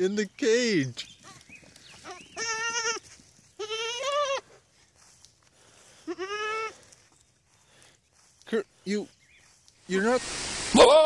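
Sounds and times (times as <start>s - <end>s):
goat bleating: 2.0s - 4.6s, 6.0s - 6.8s.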